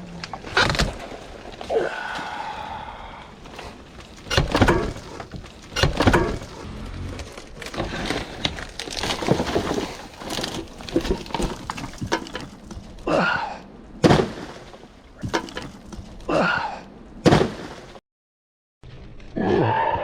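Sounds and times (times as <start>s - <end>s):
wood knocking and cracking: 0.2s - 1.7s, 3.4s - 13.0s, 14.0s - 16.3s
heavy thuds: 3.4s - 13.0s.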